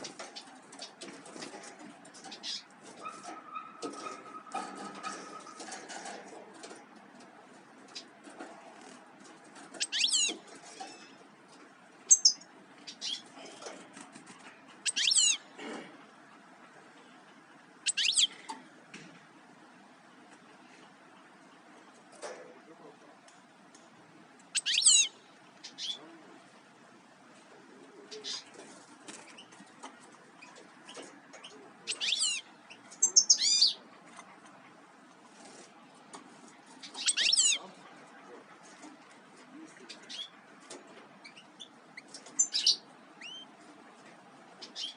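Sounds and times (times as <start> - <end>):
small songbird calling: 9.8 - 10.3, 12.1 - 13.3, 14.8 - 15.4, 17.8 - 18.4, 24.6 - 26.0, 31.4 - 33.8, 36.8 - 37.7, 41.2 - 43.5.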